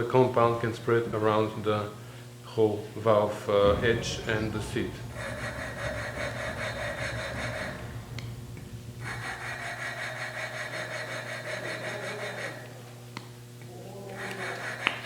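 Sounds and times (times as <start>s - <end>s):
valve lapping compound scraping: 3.6s - 12.6s.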